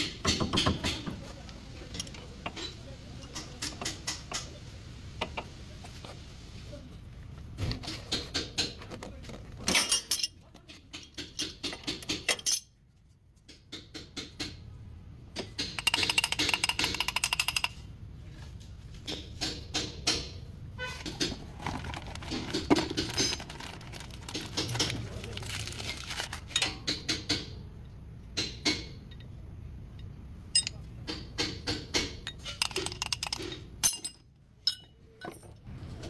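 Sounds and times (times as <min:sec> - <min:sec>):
hand tools clicking and knocking: 0:00.0 - 0:01.2, 0:15.4 - 0:17.8, 0:21.0 - 0:27.6, 0:30.6 - 0:35.7.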